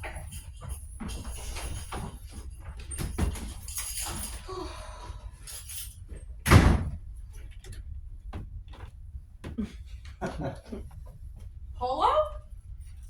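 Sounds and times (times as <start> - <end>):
door slamming shut: 6.4 - 7.0.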